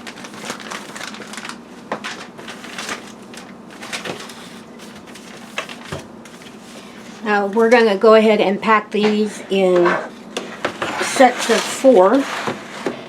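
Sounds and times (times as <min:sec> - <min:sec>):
plastic bag rustling: 0:00.0 - 0:07.9, 0:09.0 - 0:13.0.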